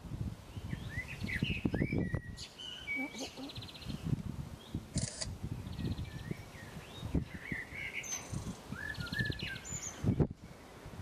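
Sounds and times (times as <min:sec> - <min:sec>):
songbirds chirping and trilling: 0:00.4 - 0:11.0.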